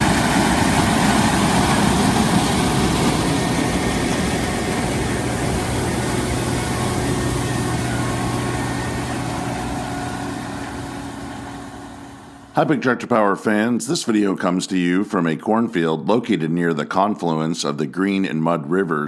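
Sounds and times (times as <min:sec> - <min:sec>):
combine harvester running: 0:00.0 - 0:12.7.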